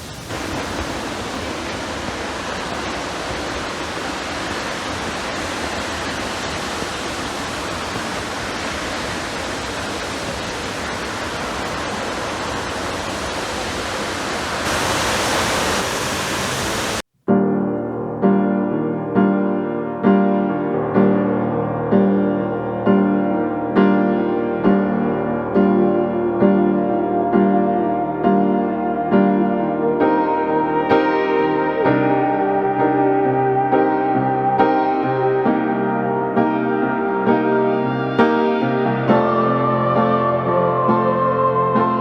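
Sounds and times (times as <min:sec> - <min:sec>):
waterfall rushing: 0:00.0 - 0:17.0
piano music: 0:16.0 - 0:42.0.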